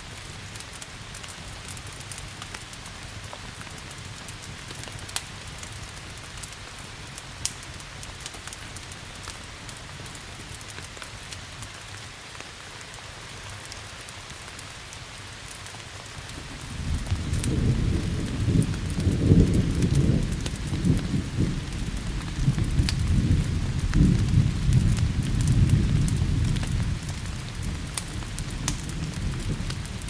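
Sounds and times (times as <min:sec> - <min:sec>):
steady rain: 0:00.0 - 0:30.0
wood fire crackling: 0:00.0 - 0:30.0
thunder rumbling: 0:16.4 - 0:30.0.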